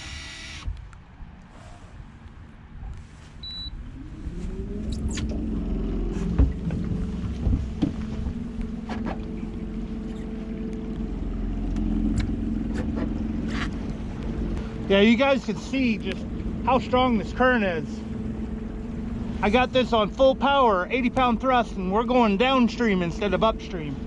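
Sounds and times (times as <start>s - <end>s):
electric motor humming: 0.0s - 0.7s.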